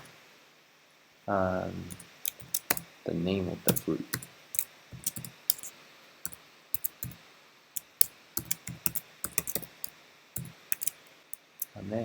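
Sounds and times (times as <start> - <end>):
typing on computer keyboard: 1.9 - 2.9, 3.7 - 5.7, 6.8 - 7.2, 7.8 - 11.8.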